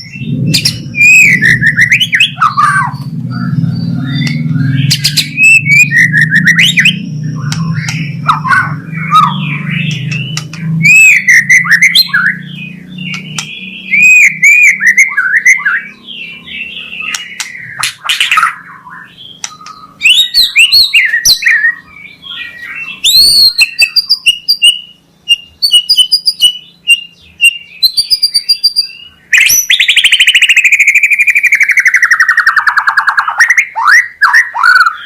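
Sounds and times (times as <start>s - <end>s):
low hum: 0.0s - 22.2s
songbird singing whistled phrases: 0.0s - 35.0s.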